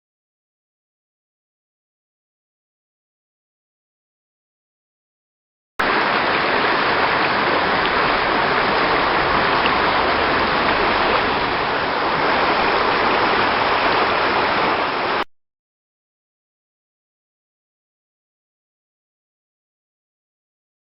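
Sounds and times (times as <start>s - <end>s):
waterfall rushing: 5.8s - 15.2s.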